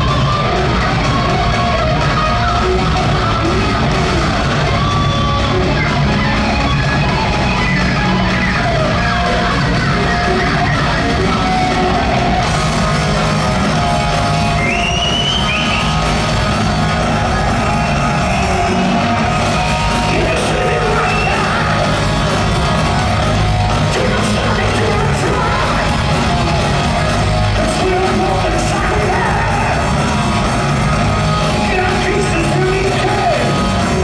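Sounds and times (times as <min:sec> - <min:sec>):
distorted electric guitar: 0:00.0 - 0:34.0
drums: 0:00.0 - 0:34.0
shouted vocals: 0:00.0 - 0:34.0.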